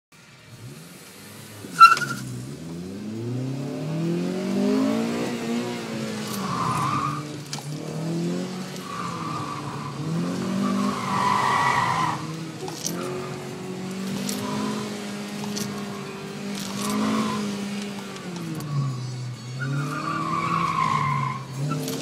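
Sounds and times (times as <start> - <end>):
car engine revving: 0.3 - 22.0
tyres squealing: 1.8 - 2.3, 5.9 - 22.0.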